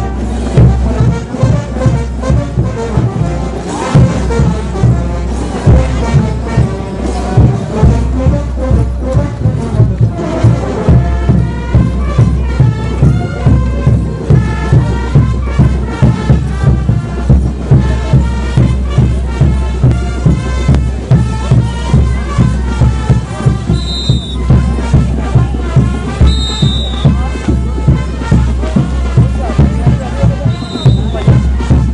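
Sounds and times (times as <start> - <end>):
brass band playing: 0.0 - 31.9
steady drum beat: 0.0 - 31.9
short high whistle: 23.8 - 24.4, 26.2 - 27.1, 30.5 - 31.3.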